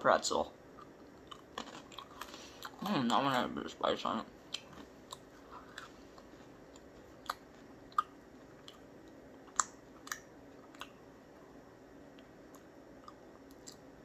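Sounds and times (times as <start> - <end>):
chewing crunchy pretzel: 0.7 - 3.5, 4.5 - 11.0, 12.1 - 13.9.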